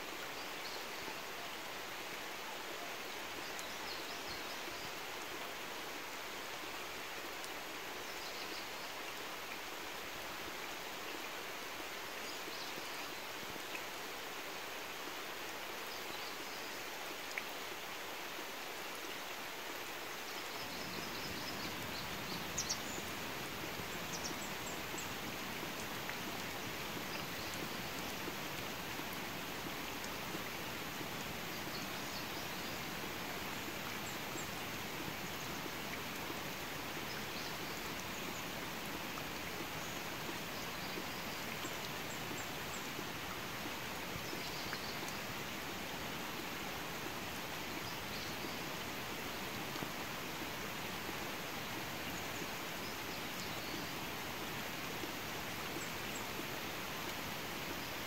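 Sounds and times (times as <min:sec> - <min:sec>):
rain falling on water: 0:00.0 - 0:58.0.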